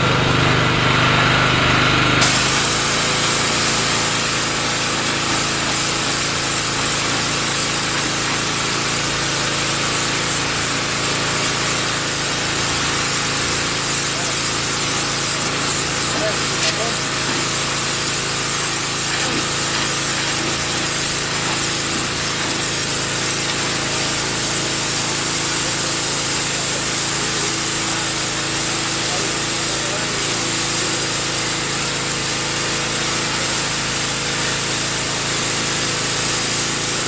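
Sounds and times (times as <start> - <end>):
motor hum: 0.0 - 30.1
water jet spraying concrete: 0.1 - 37.0.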